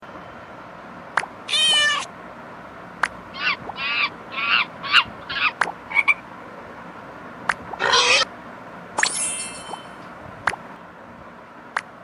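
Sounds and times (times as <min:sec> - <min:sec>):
cat meowing: 0:01.5 - 0:02.1.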